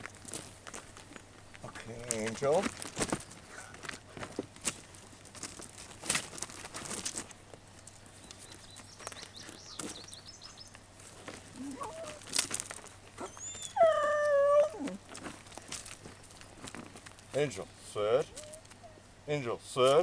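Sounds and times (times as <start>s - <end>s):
light rustles and clicks: 0.0s - 17.4s
dog whining: 11.5s - 12.4s, 13.2s - 15.3s, 18.1s - 19.0s.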